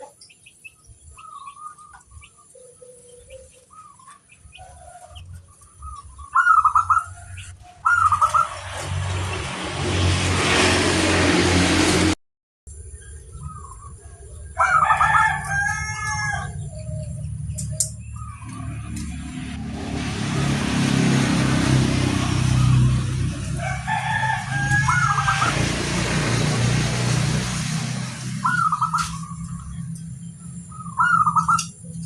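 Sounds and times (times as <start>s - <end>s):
passing motor vehicle rumble: 0.0s - 32.0s
rooster crowing: 14.5s - 16.8s, 23.3s - 26.0s.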